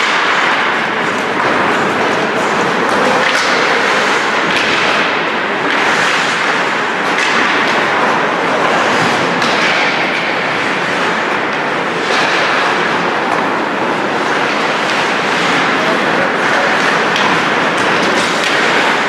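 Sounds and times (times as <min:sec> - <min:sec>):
skates scraping on ice: 0:00.0 - 0:19.0
sticks and puck knocking: 0:00.0 - 0:19.0.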